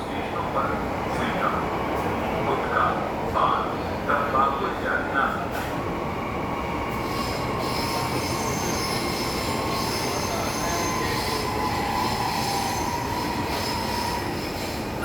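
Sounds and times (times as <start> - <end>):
train rumble: 4.4 - 15.0
high wheel squeal: 7.0 - 15.0.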